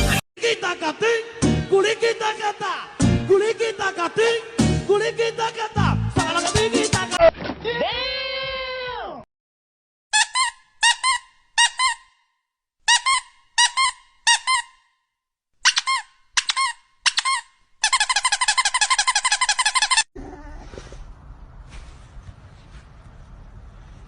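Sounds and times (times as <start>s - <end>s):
squeaky toy squeaking: 10.1s - 12.2s, 12.9s - 14.9s, 15.6s - 20.2s.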